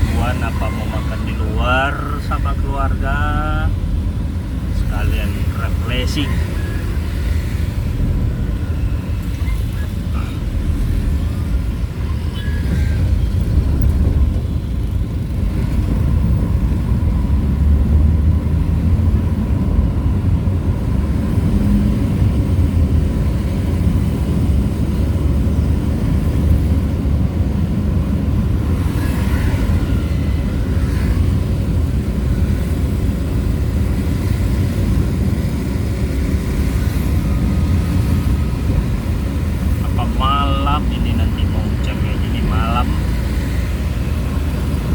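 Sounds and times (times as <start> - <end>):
vehicle driving rumble: 0.0 - 44.9.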